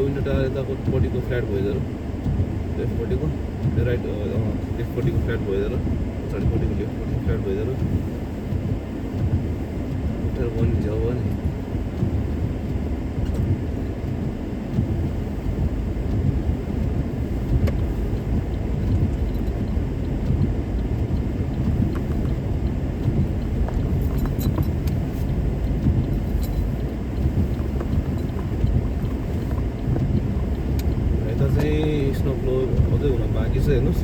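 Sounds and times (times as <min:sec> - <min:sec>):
tyre and road rumble: 0:00.0 - 0:34.0
faint ticks: 0:15.6 - 0:33.8.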